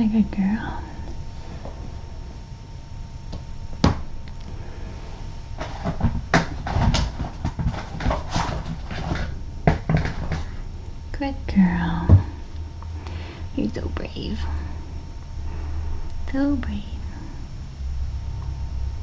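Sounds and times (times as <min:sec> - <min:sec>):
handling clicks knocks and rustles: 0:05.6 - 0:10.6.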